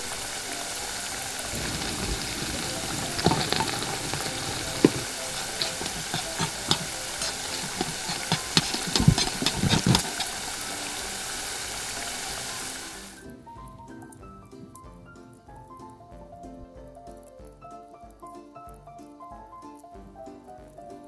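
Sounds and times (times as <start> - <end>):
sauce sizzling in a wok: 0.0 - 13.3
utensil knocking against pan: 1.6 - 10.5.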